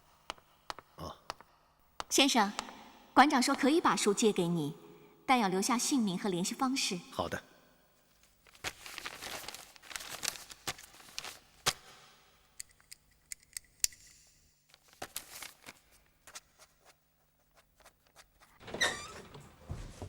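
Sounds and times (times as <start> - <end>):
paper rustling: 8.1 - 11.8, 14.7 - 18.6.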